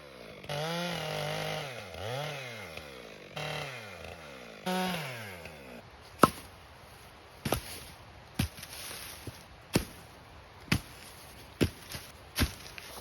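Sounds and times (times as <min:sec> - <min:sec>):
chainsaw engine revving down: 0:00.0 - 0:05.8
sharp knocks: 0:06.2 - 0:06.5.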